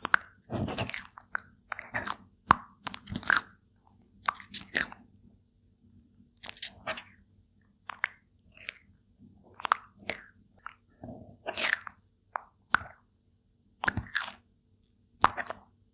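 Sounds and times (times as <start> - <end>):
turtle chewing crunches: 0.0 - 5.1.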